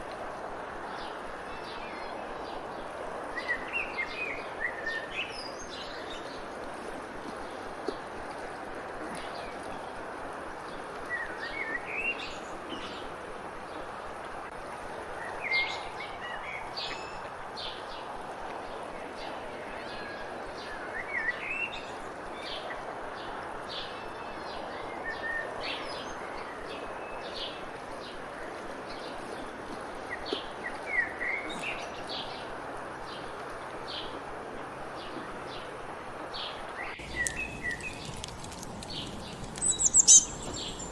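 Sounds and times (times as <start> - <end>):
songbirds chirping and singing: 36.8 - 40.9.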